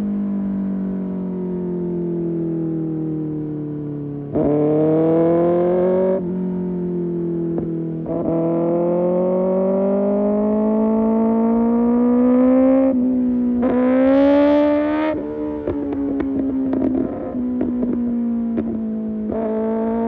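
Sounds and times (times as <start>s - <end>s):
motorcycle engine revving: 4.3s - 20.0s
exhaust pops and crackles: 15.6s - 19.5s.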